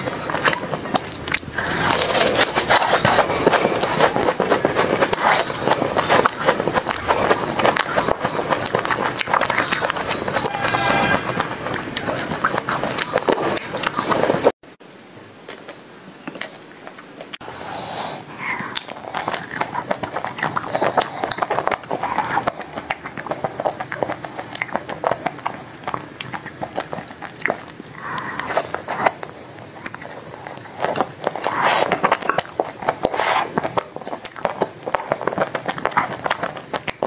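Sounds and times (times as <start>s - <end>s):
chewing ice cream bars: 0.0s - 14.6s, 18.3s - 37.0s
wet mouth sounds: 0.0s - 14.6s, 16.4s - 37.0s.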